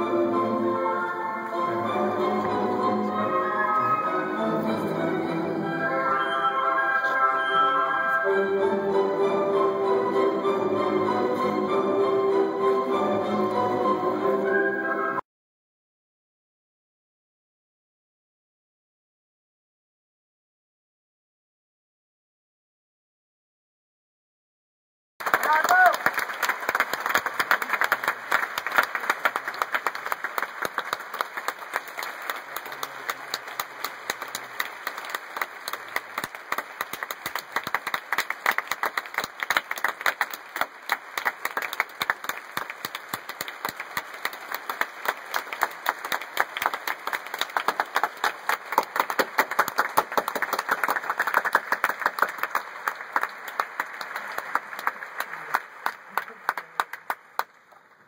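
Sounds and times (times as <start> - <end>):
audience applauding: 25.2 - 58.0.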